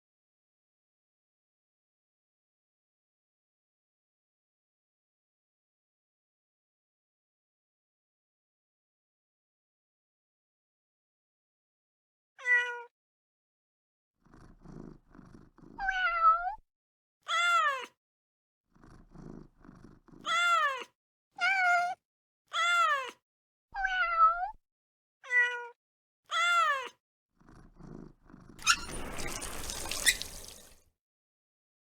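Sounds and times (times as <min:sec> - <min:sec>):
cat meowing: 0:12.4 - 0:12.9, 0:17.3 - 0:17.9, 0:20.2 - 0:23.2, 0:23.8 - 0:24.6, 0:25.3 - 0:27.0
cat purring: 0:14.2 - 0:15.9, 0:18.7 - 0:20.3, 0:27.4 - 0:30.7.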